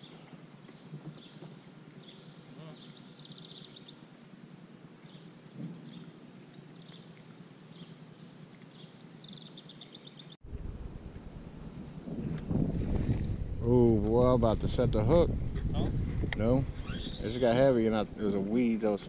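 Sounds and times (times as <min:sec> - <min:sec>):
small birds chirping and trilling: 0:00.0 - 0:04.1, 0:05.0 - 0:10.4, 0:16.7 - 0:19.0
low wind rumble on microphone: 0:10.4 - 0:19.0.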